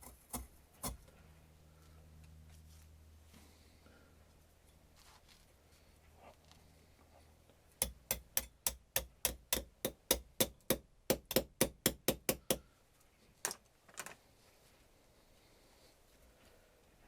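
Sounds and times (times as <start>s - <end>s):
sharp knocks: 7.8s - 12.6s.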